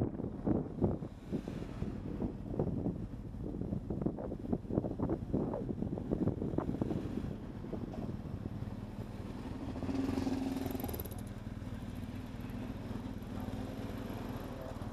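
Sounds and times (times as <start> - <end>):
motorcycle engine running: 8.2 - 14.9.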